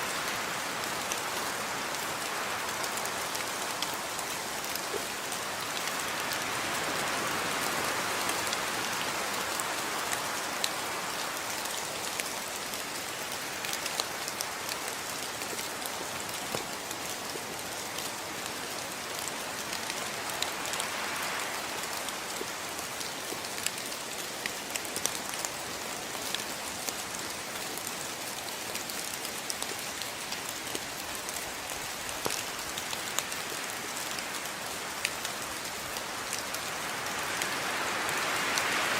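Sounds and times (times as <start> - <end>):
steady rain hiss: 0.0 - 38.9
raindrops ticking on a surface: 0.1 - 38.9.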